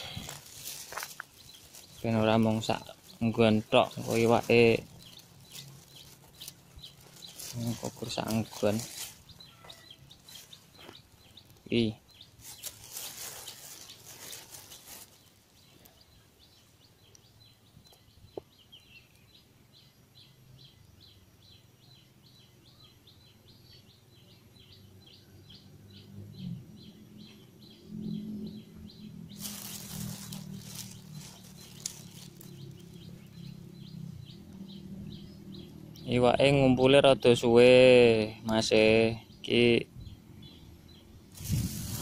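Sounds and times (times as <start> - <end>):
bird chirping: 0.0 - 42.0.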